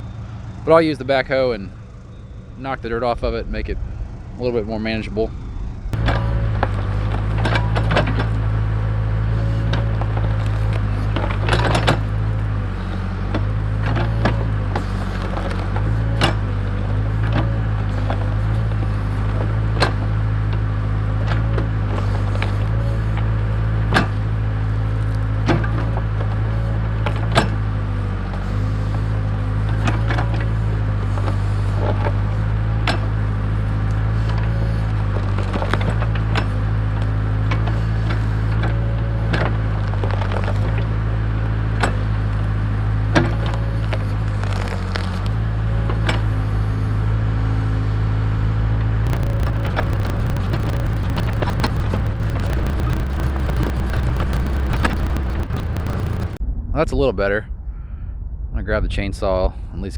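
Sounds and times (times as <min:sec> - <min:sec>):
diesel engine running: 0:00.0 - 0:24.9, 0:49.0 - 0:56.4.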